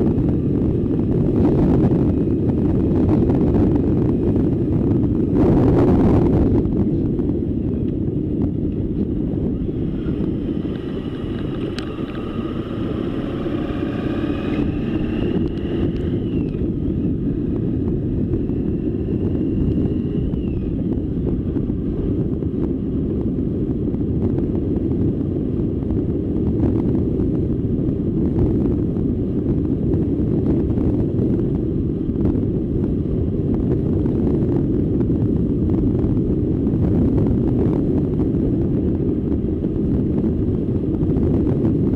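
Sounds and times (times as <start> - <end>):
faint whine: 0.0 - 41.9
wind buffeting microphone: 0.0 - 41.9.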